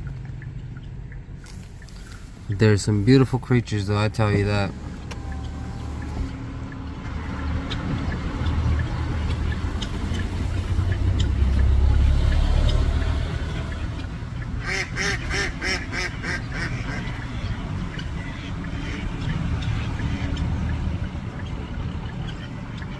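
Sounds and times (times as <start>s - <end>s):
flamingos honking: 1.5s - 22.9s.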